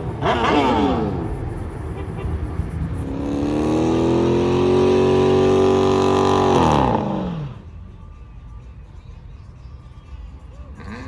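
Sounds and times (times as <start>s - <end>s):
car engine revving: 0.0s - 7.6s.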